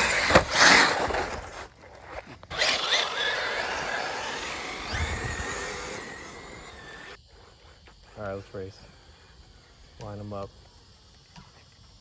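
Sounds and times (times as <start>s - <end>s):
rc buggies whirring past: 0.0s - 7.2s.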